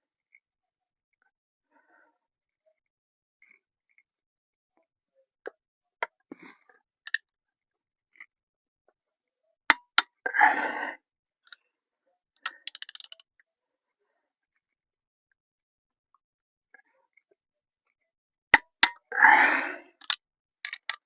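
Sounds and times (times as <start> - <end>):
ratchet ticking: 12.5 - 13.2.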